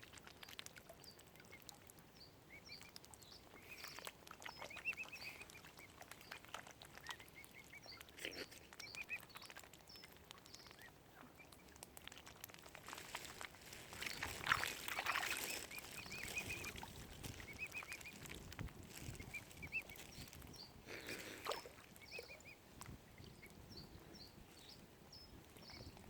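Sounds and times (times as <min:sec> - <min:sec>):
cygnets peeping: 0:00.2 - 0:11.8, 0:13.9 - 0:26.0
water splashing and sloshing: 0:02.9 - 0:23.6.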